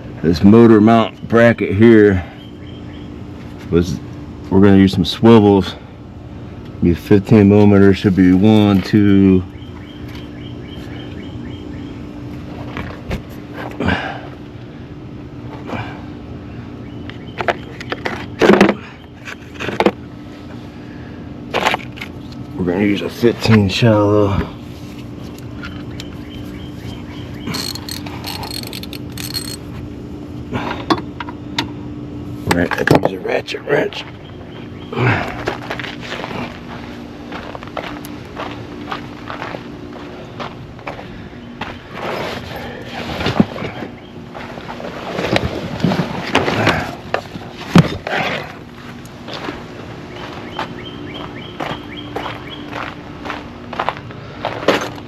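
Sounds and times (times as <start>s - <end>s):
steady low hum: 0.0s - 54.7s
hand ratchet clicking: 27.5s - 29.6s.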